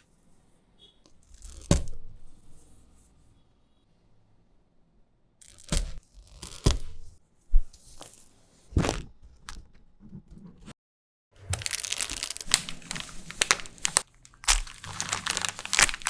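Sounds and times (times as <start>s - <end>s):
crisp snack crunching: 11.4s - 16.0s
rustling: 11.4s - 16.0s.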